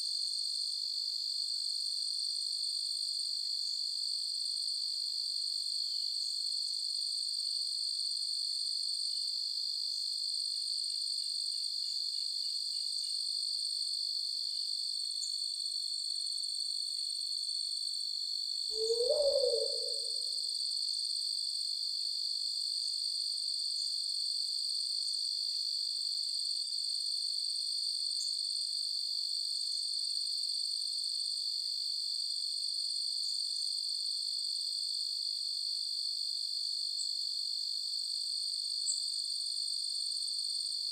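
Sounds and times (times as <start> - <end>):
crickets trilling: 18.7 - 20.4.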